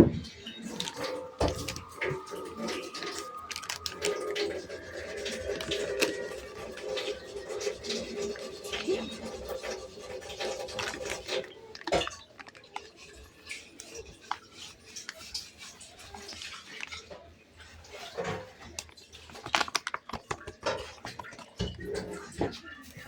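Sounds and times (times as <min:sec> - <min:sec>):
household items knocking and clicking: 0:00.0 - 0:13.1, 0:18.2 - 0:23.0.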